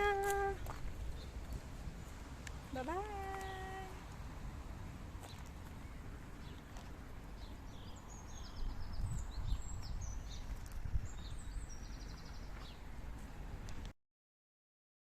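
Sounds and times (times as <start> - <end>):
low outdoor rumble: 0.0 - 13.9
small birds chirping and trilling: 5.2 - 12.9.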